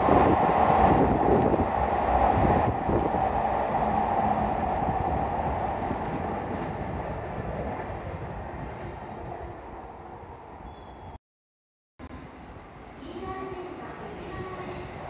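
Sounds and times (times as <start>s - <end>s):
electric train rumble: 0.0s - 10.6s.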